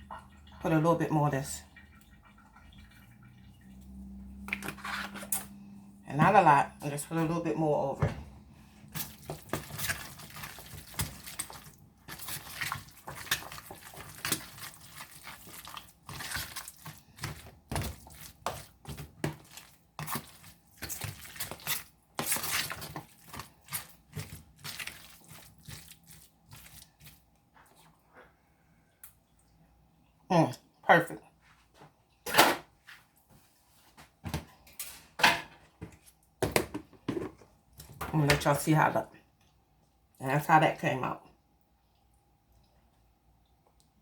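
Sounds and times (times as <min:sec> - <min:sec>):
soft wet mixing: 0:00.0 - 0:32.3, 0:35.6 - 0:44.0.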